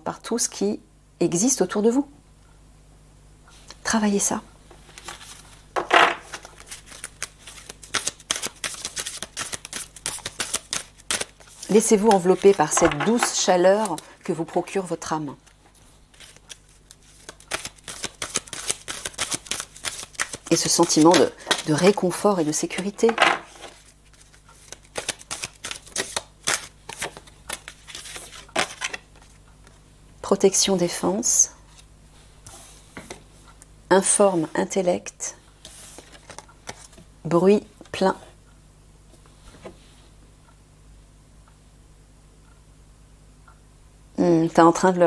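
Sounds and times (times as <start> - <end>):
cards being shuffled: 4.9 - 29.8, 35.6 - 37.0.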